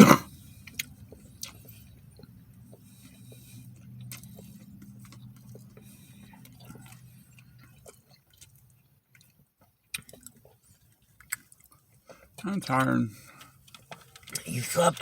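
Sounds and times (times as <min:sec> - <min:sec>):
person chewing: 0:00.0 - 0:12.4
low engine rumble: 0:00.3 - 0:08.9.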